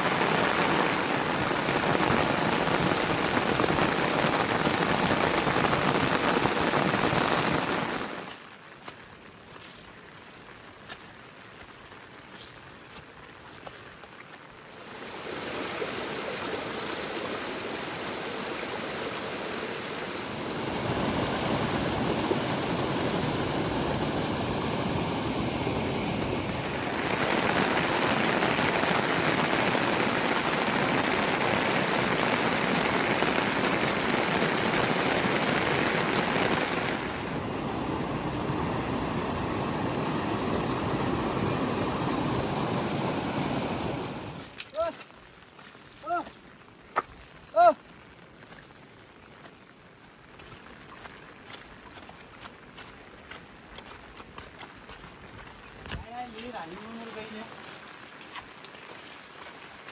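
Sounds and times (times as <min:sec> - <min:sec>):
heavy rain: 0:00.0 - 0:08.6, 0:14.6 - 0:45.2, 0:56.1 - 0:58.6.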